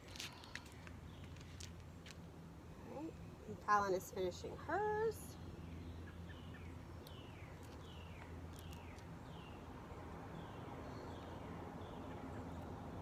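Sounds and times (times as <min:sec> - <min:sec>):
faint low outdoor rumble: 0:00.0 - 0:13.0.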